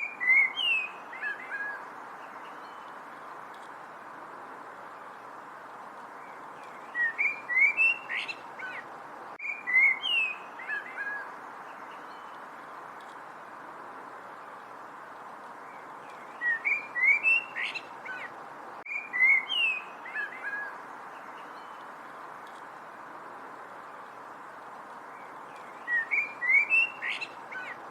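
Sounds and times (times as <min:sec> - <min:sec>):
songbird singing: 0:00.0 - 0:27.9
steady background hiss: 0:00.0 - 0:27.9.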